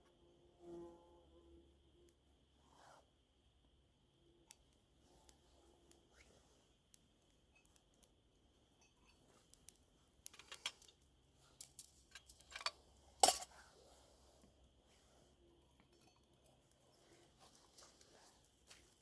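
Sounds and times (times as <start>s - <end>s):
metal cookware clinking and clanking: 12.1s - 13.5s.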